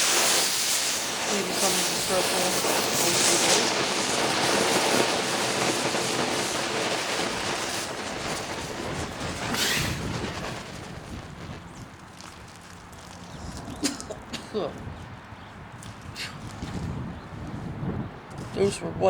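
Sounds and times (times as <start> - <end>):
smoke balls hissing: 0.0 - 14.3.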